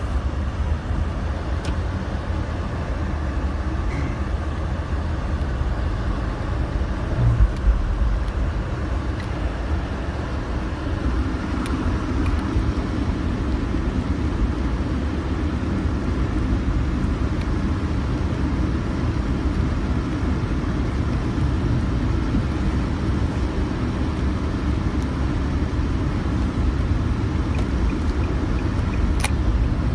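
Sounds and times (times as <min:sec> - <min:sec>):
car road and engine rumble: 0:00.0 - 0:29.9.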